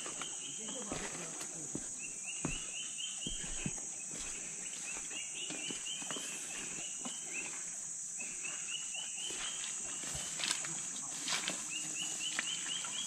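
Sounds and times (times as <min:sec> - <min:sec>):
insect chorus hiss: 0:00.0 - 0:13.0.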